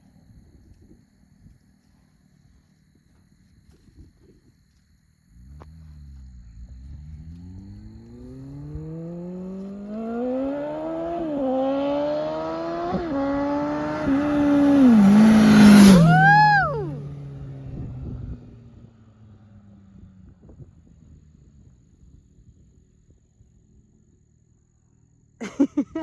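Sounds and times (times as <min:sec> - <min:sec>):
motorcycle engine accelerating: 0:05.3 - 0:23.0.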